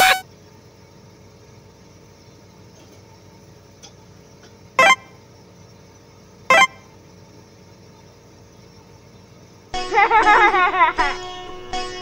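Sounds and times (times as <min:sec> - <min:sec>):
short horn toots: 0:00.0 - 0:00.2.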